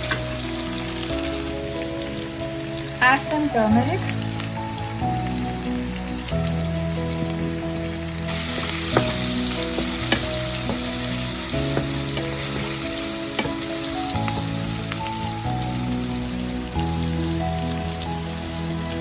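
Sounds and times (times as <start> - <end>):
background music: 0.0 - 19.0
onions sizzling in oil: 0.0 - 19.0
utensil clicking against pan: 8.3 - 15.2.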